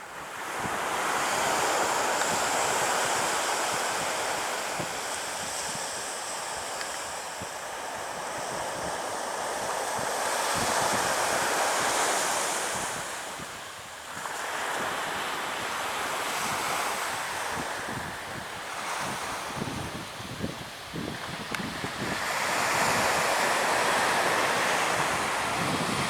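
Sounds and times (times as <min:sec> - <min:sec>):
surf breaking on beach: 0:00.4 - 0:26.0
wind buffeting microphone: 0:16.4 - 0:26.0.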